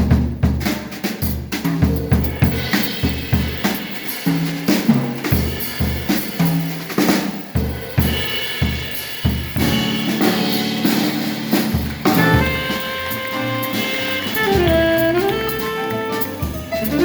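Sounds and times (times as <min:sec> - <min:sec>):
jazz drum solo: 0:00.0 - 0:17.0
band with held horn line: 0:09.6 - 0:17.0.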